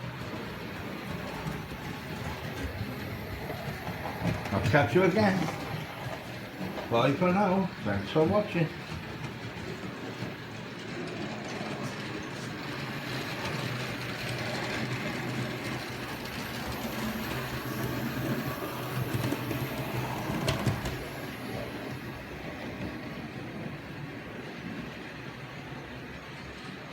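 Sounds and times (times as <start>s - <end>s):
model train motor hum: 0.0s - 23.9s.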